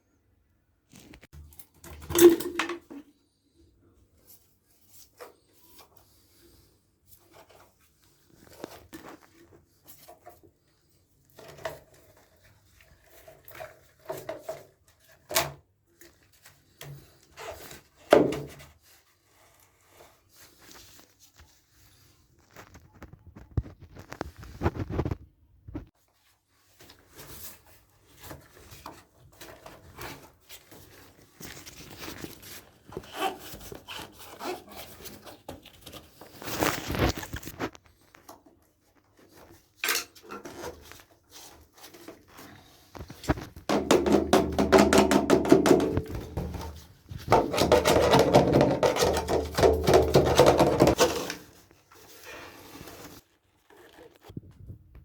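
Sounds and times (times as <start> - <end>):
fast scraping on pipe: 40.4 - 53.2
plastic pipe knocks and clicks: 43.7 - 51.2.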